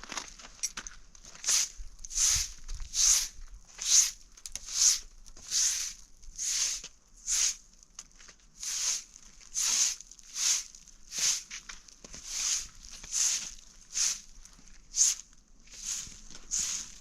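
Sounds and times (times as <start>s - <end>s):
footsteps crunching in snow: 8.1s - 17.0s.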